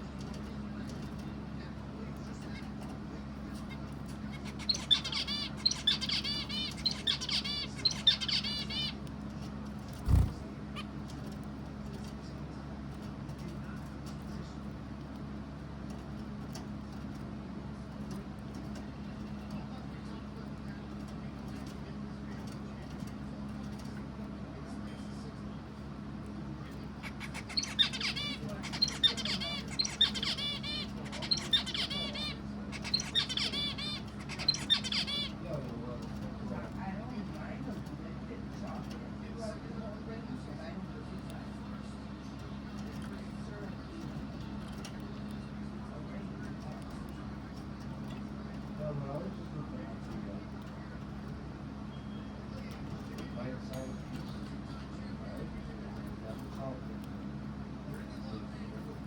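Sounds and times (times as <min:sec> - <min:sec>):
bird chirping: 0:03.7 - 0:09.0, 0:27.0 - 0:35.4.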